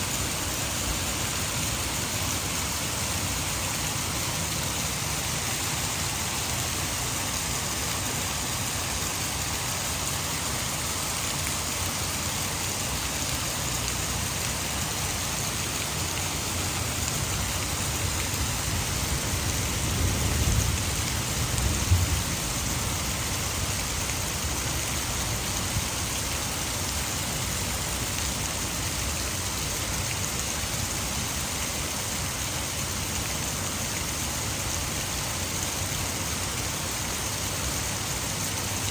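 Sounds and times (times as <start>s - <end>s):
heavy rain falling: 0.0s - 38.9s
thunder rumbling: 18.5s - 23.7s.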